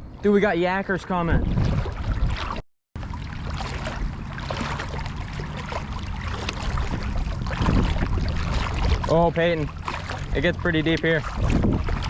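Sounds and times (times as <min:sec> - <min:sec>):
wind rumbling on microphone: 0:00.0 - 0:12.0
river water flowing and splashing: 0:00.1 - 0:12.0.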